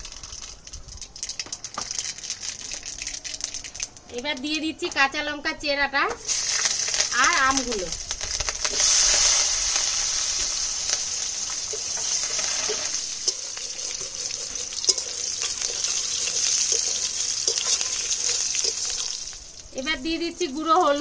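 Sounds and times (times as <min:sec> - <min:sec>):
food sizzling in hot oil: 0:00.0 - 0:03.9, 0:06.1 - 0:21.0
spoon scraping and tapping pan: 0:11.7 - 0:19.2.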